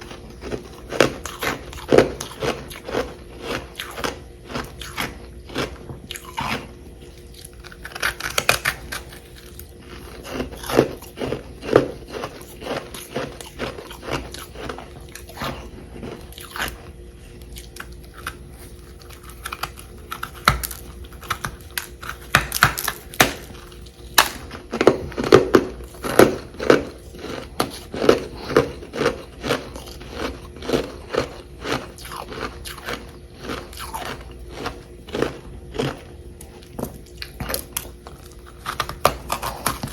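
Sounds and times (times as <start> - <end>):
crunching and chewing ice: 0.0 - 39.9.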